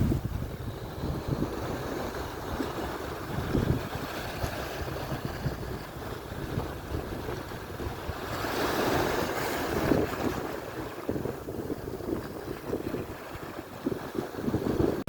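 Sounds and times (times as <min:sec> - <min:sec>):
surf washing on shore: 0:00.0 - 0:15.0
wind buffeting microphone: 0:00.0 - 0:15.0.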